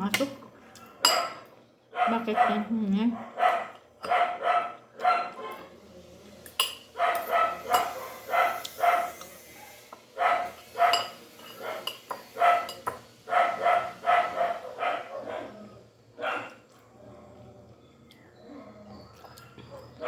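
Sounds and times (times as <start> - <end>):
dog barking: 1.0 - 5.7, 7.0 - 15.6, 16.2 - 16.7.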